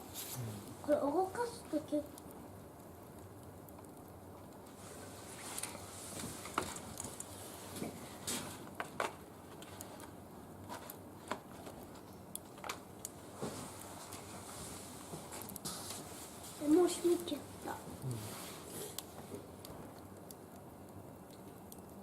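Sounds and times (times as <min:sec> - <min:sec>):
faint hiss: 0:00.0 - 0:02.0, 0:15.6 - 0:19.1.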